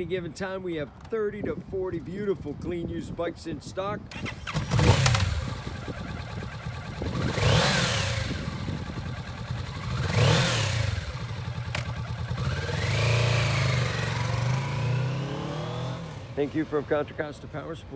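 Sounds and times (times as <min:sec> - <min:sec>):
motorcycle engine revving: 0:04.1 - 0:17.0.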